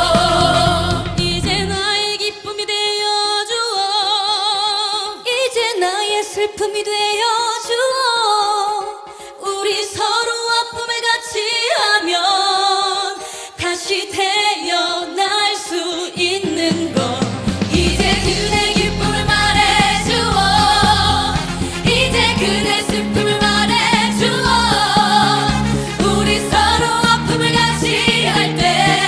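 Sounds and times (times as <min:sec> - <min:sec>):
band with bass and beat: 0:00.0 - 0:01.8, 0:16.6 - 0:29.0
women singing with vibrato: 0:00.0 - 0:29.0.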